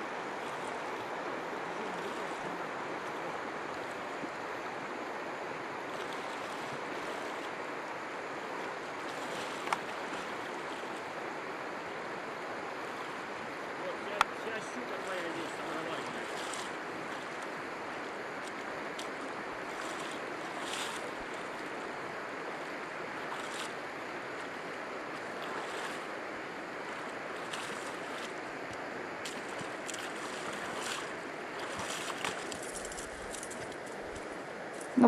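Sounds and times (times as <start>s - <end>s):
river rushing through rapids: 0.0s - 35.0s.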